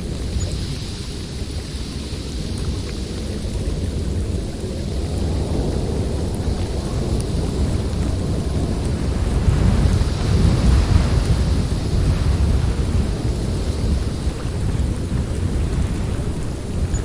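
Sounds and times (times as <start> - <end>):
snowstorm wind rushing: 0.0 - 17.0.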